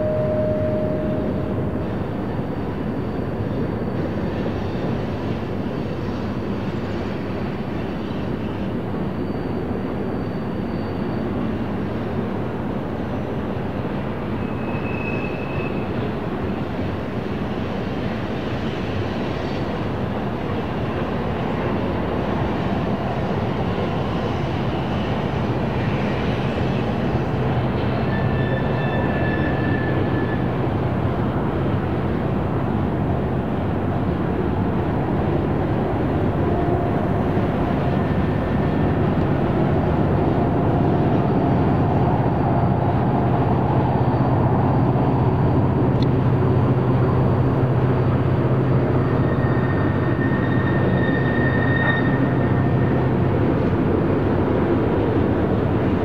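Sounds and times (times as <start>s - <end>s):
train wheels squealing: 0.0s - 30.8s, 47.9s - 53.9s
freight train rumbling: 0.0s - 56.0s.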